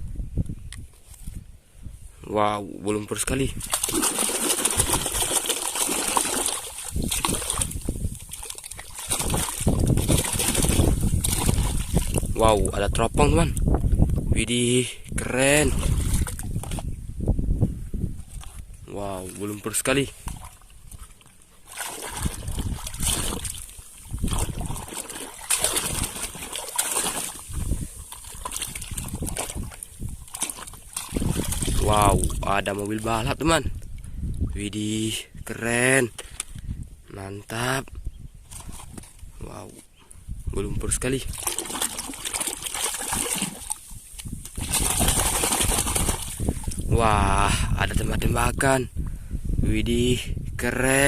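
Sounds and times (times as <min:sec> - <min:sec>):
water splashing and sloshing: 0:03.2 - 0:14.2, 0:15.2 - 0:17.0, 0:18.2 - 0:34.7, 0:38.4 - 0:40.0, 0:40.8 - 0:47.2.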